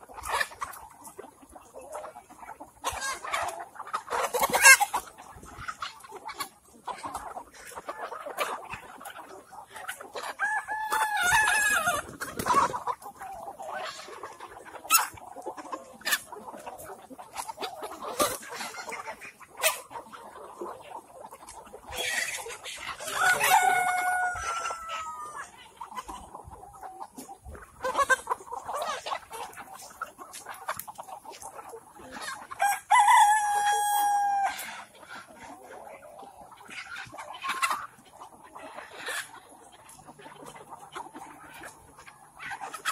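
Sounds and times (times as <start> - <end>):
chickens clucking: 0.0 - 42.9
rooster crowing: 10.4 - 11.5, 23.0 - 25.4, 32.6 - 34.5.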